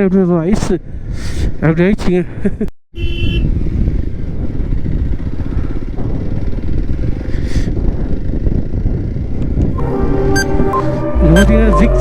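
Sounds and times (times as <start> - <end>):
motorcycle engine rumbling: 3.0 - 12.0.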